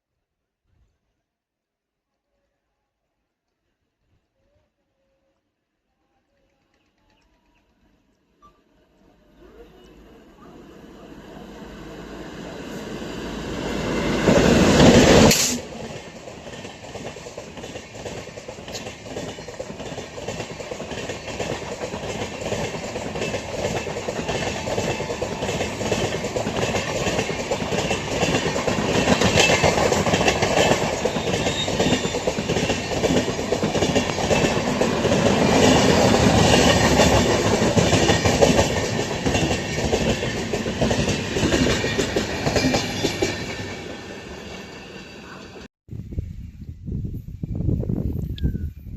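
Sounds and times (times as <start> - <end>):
train wheels clickety-clack: 14.1 - 44.7.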